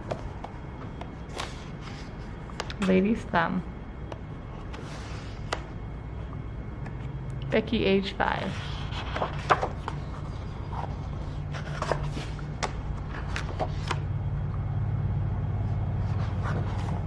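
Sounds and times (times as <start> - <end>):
notebook pages turning: 0.0 - 2.8, 8.5 - 14.1, 16.0 - 17.0
steady low hum: 0.0 - 17.0.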